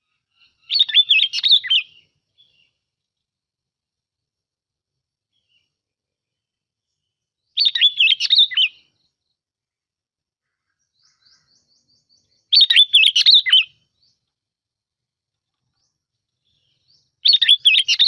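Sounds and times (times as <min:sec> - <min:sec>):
bulbul singing: 0:06.9 - 0:09.1, 0:11.0 - 0:14.3, 0:15.7 - 0:18.0.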